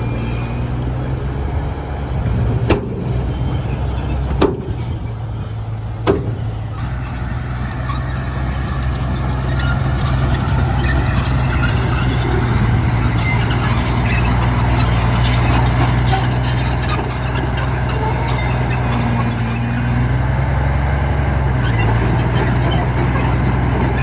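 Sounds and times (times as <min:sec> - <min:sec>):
diesel machinery engine running: 0:00.0 - 0:24.0
high-pitched rattling and squeaking: 0:03.1 - 0:20.2, 0:21.6 - 0:24.0
sharp knocks: 0:06.0 - 0:06.5.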